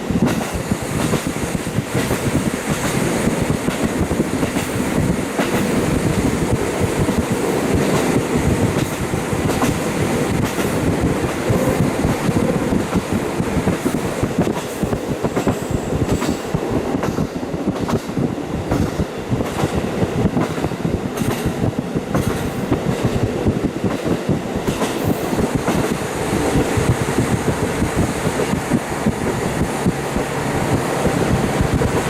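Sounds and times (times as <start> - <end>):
train running gear rumble: 0.0 - 32.0
wind rush: 0.0 - 32.0.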